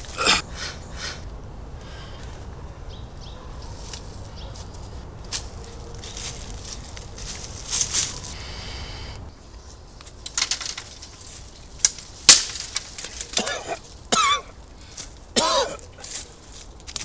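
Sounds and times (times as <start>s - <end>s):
loud crack: 11.8s - 13.6s.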